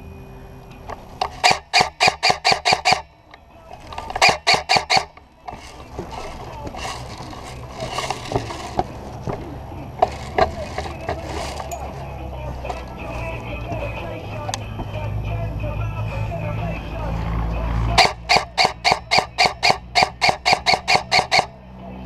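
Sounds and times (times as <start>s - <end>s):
airsoft gun shots: 1.3s - 3.1s, 4.1s - 5.7s, 18.0s - 21.5s
clicks: 13.6s - 14.9s.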